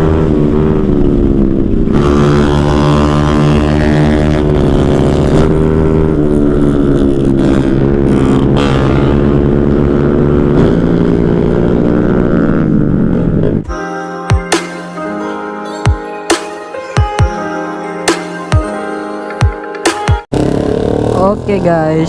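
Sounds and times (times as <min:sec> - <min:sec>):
motorcycle engine at high revs: 0:00.0 - 0:13.7, 0:20.3 - 0:22.0.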